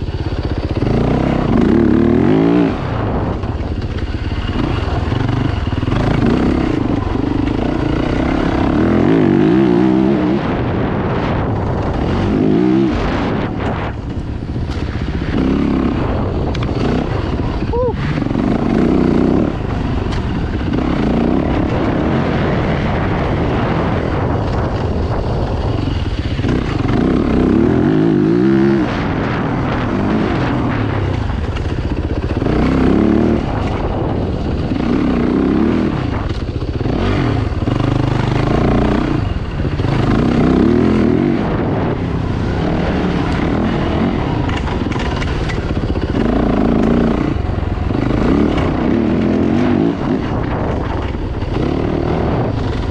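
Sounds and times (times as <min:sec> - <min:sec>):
dirt bike engines revving: 0:00.0 - 0:52.9.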